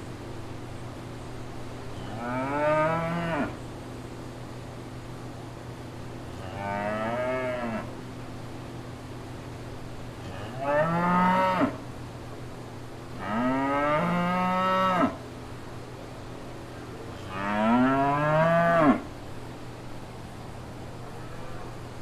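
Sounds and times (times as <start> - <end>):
cow mooing: 2.1 - 3.6, 17.3 - 19.1.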